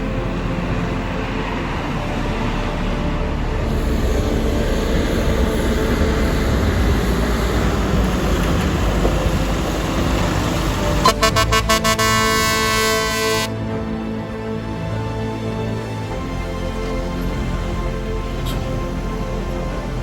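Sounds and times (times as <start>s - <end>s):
truck engine and road noise: 0.0s - 20.0s
truck horn short toots: 11.0s - 13.5s.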